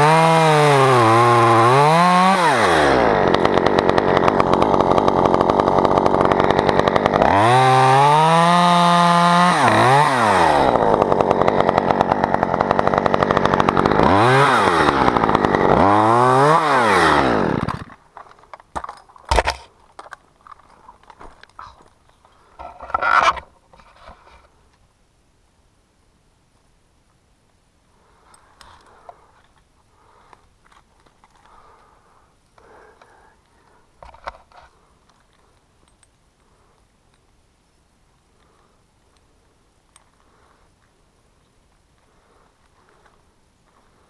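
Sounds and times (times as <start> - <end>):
chainsaw revving and cutting wood: 0.0 - 18.0, 19.3 - 19.7.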